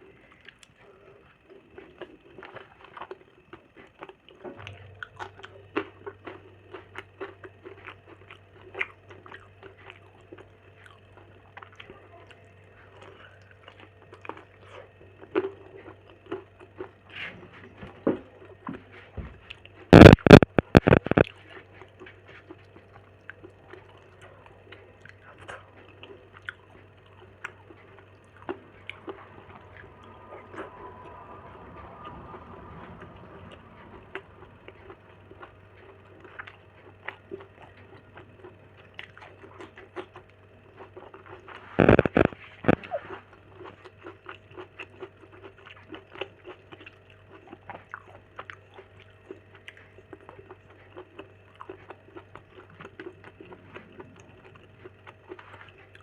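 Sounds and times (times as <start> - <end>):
person chewing and eating: 0.0 - 56.0
loud bursts of noise: 19.9 - 21.2.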